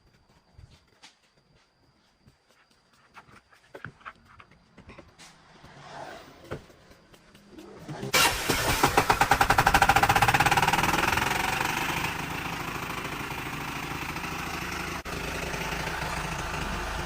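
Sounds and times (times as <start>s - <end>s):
engine idling: 7.1s - 17.0s.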